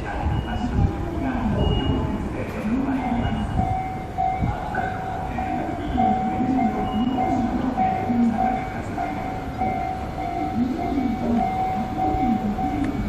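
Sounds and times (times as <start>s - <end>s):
electric train whine: 3.0s - 13.0s.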